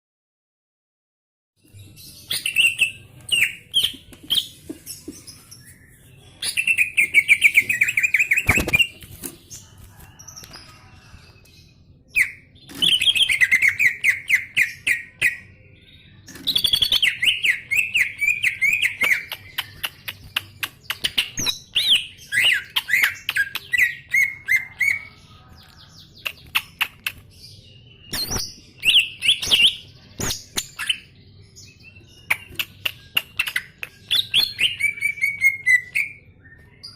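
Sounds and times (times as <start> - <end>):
bird chirps and clicks: 6.4 - 11.6, 12.2 - 24.7, 25.6 - 27.5, 28.1 - 31.1, 32.0 - 36.9.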